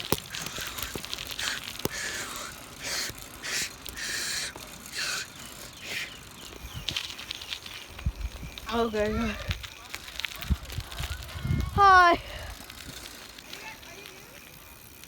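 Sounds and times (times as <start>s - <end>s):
person breathing hard: 0.2s - 6.5s.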